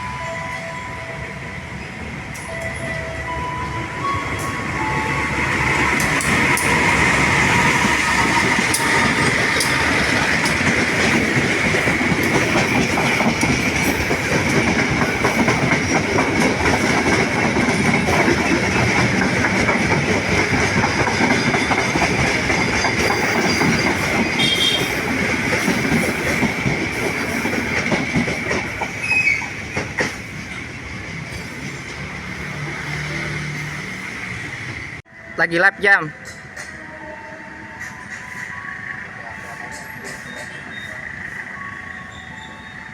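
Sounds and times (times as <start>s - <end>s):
high ringing tone: 0.0s - 10.5s
train rumble: 0.0s - 35.3s
train wheels clattering over rails: 4.3s - 34.0s.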